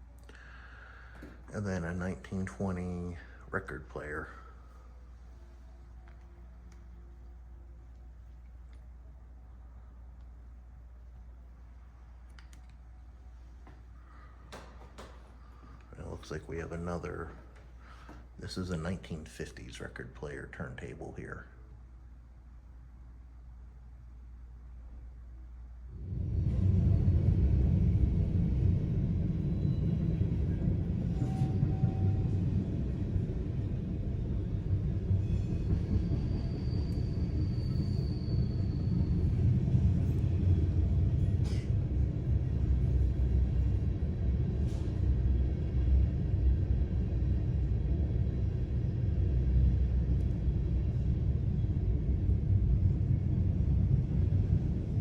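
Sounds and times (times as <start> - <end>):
train rumbling past: 25.9 - 55.0.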